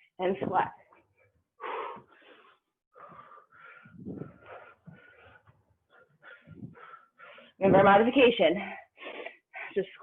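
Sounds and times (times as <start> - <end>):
person breathing hard: 1.2 - 7.6.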